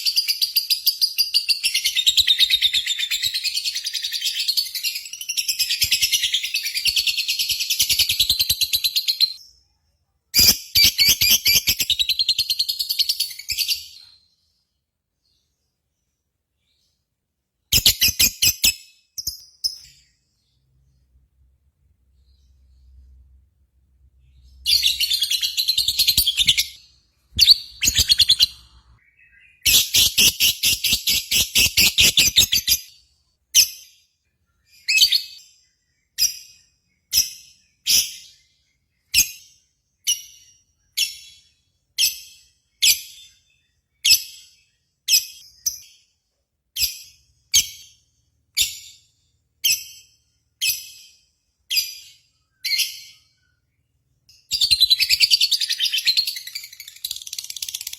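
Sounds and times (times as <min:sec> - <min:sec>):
bird chirps: 0:00.0 - 0:57.9
bird chattering: 0:55.0 - 0:57.9.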